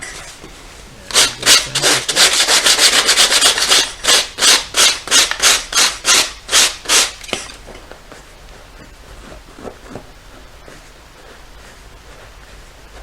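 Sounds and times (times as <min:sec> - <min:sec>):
sandpaper rubbing on leather: 0:01.2 - 0:04.2.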